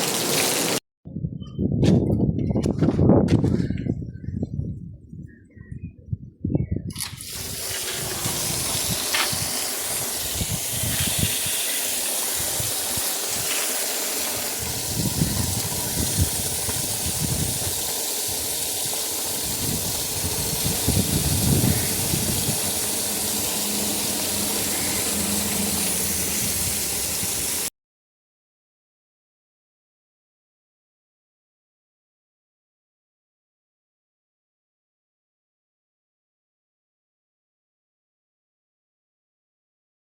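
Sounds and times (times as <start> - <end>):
water rushing: 0.0 - 0.8, 7.0 - 27.7
wind buffeting microphone: 1.1 - 11.6, 14.4 - 27.6.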